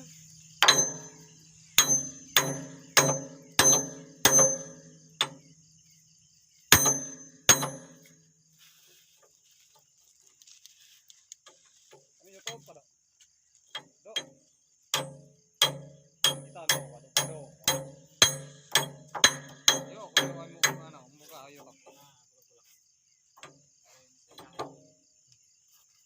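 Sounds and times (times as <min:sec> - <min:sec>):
hammer striking metal: 0:00.6 - 0:05.4, 0:06.7 - 0:08.1, 0:14.9 - 0:21.0.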